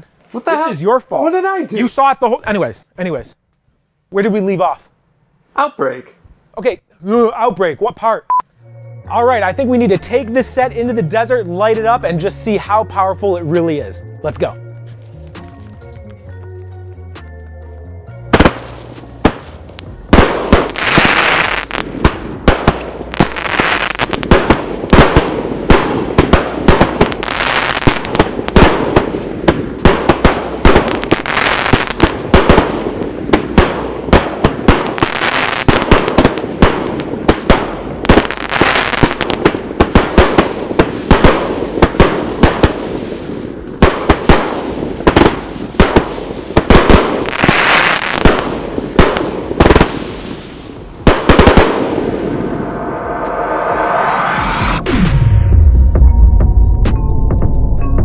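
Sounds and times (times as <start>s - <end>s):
fireworks crackling: 18.3s - 52.6s
fireworks shots and shell breaks: 20.2s - 42.8s, 43.8s - 50.0s, 51.0s - 52.1s.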